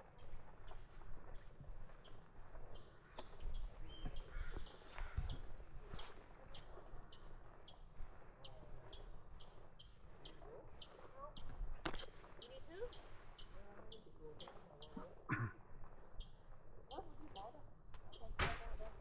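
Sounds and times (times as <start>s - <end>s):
small bird chirping: 0.2s - 15.2s.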